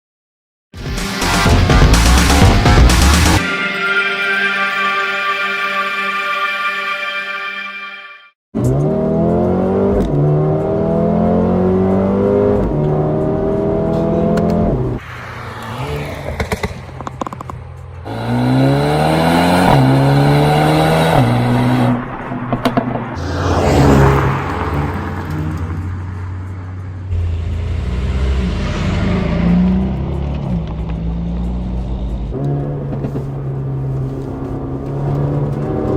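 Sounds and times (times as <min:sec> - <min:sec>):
car engine accelerating through gears: 0:08.6 - 0:21.9, 0:23.1 - 0:35.9.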